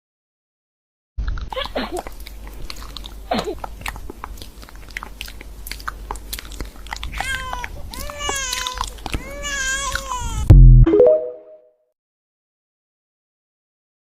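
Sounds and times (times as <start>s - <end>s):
cat crunching food: 1.2s - 10.1s
high wavering cat cries: 7.1s - 10.5s.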